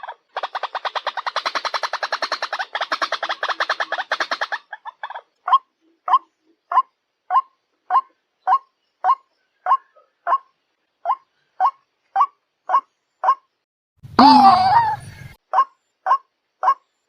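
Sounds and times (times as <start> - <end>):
waterhen calling: 14.2 - 16.8.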